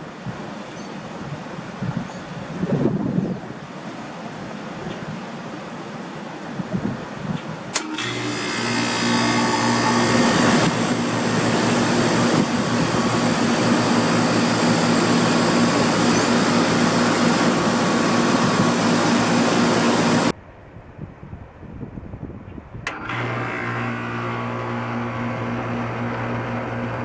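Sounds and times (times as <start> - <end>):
condenser fan rushing: 0.0 - 20.4, 22.8 - 27.0
air conditioner compressor hum: 5.3 - 20.3, 22.9 - 27.0.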